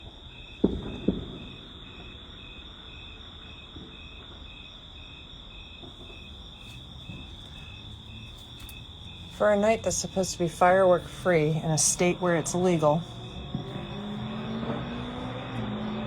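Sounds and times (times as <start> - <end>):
crickets chirping: 0.0 - 16.0
firework bang: 0.5 - 2.6, 13.1 - 16.0.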